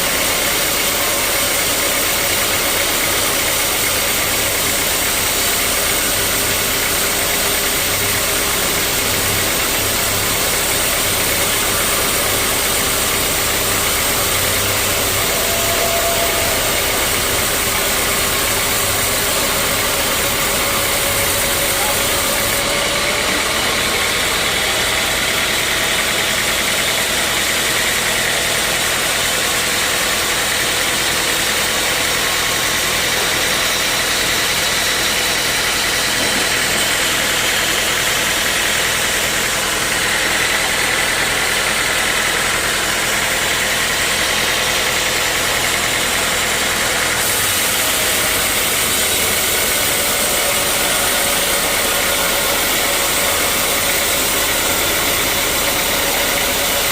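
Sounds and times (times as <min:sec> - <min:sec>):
sawmill machinery running: 0:00.0 - 0:56.9.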